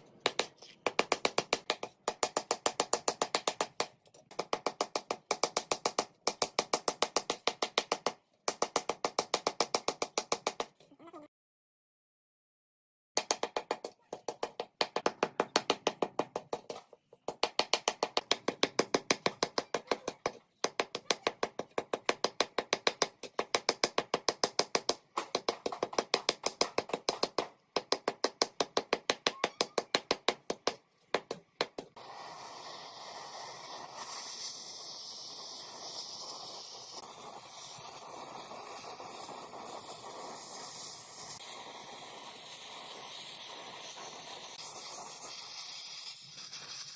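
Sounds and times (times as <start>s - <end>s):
spraying hiss: 32.0s - 46.9s.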